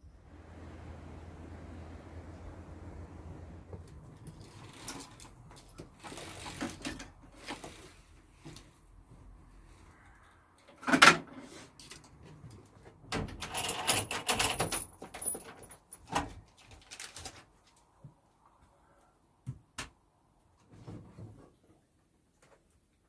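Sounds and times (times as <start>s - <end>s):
objects clattering and rattling: 4.1s - 8.7s, 10.7s - 17.6s.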